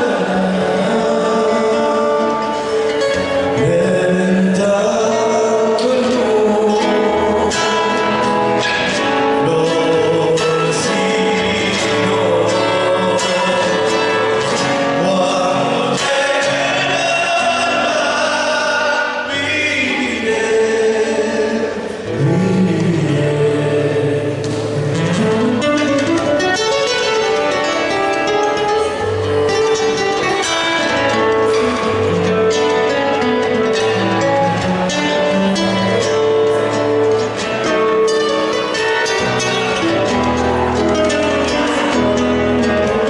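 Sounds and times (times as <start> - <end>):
several voices singing: 0.0 - 25.0.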